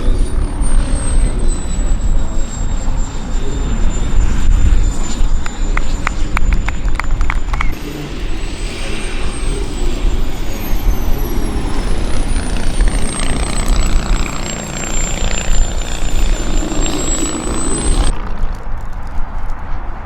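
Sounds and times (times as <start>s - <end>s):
jet turbine whine: 0.0s - 20.0s
wind on microphone: 0.0s - 20.0s.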